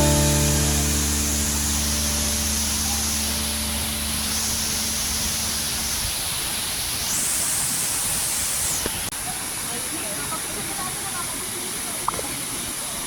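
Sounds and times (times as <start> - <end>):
low droning hum: 0.0 - 6.1
waterfall rushing: 0.0 - 11.8.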